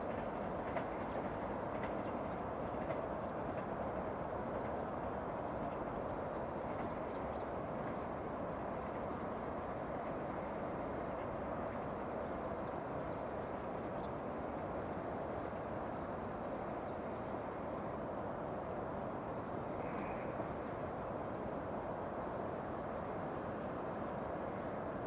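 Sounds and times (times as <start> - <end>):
distant electric train rumble: 0.0 - 25.0
faint bird chirps: 19.7 - 20.5.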